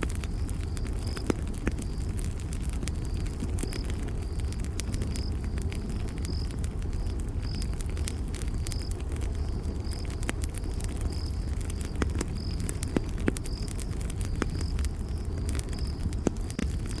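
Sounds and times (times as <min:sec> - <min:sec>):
campfire crackling: 0:00.0 - 0:17.0
cricket chirping: 0:00.1 - 0:17.0.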